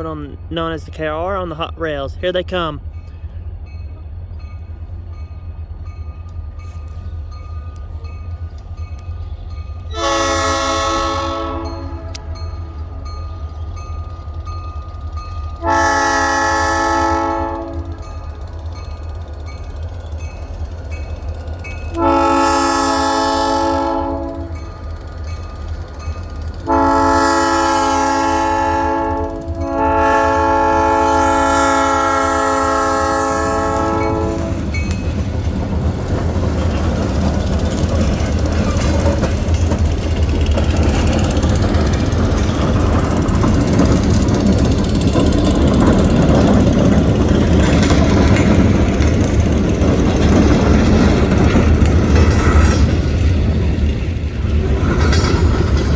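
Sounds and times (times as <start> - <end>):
low locomotive rumble: 0.0 - 55.9
locomotive air horn blasts: 9.9 - 12.3, 15.6 - 18.0, 22.0 - 24.6, 26.7 - 34.6.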